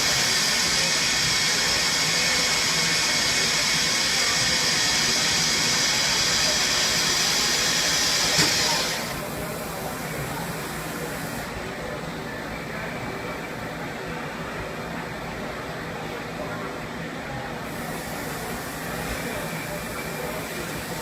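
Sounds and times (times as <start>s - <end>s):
lathe cutting high-pitched hiss: 0.0s - 11.6s, 17.6s - 21.0s.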